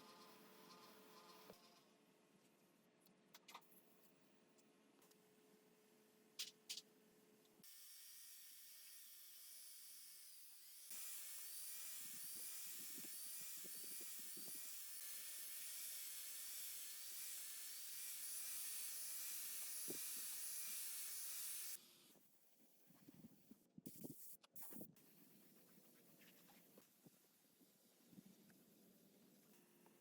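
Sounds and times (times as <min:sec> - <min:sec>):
workshop tool running: 0:07.7 - 0:21.8.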